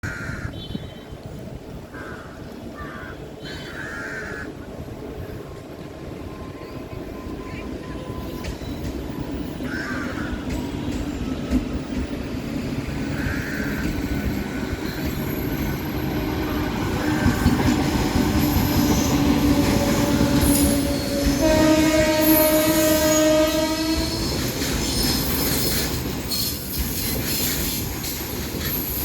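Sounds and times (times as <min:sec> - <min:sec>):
train wheels rumbling on track: 0:04.5 - 0:29.0
locomotive horn: 0:16.1 - 0:24.5.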